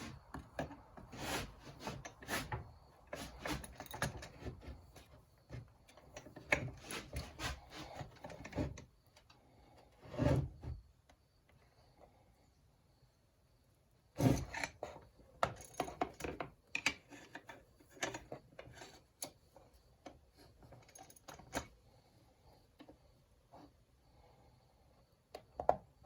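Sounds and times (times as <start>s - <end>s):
hand tools clicking and rattling: 0.0s - 5.2s.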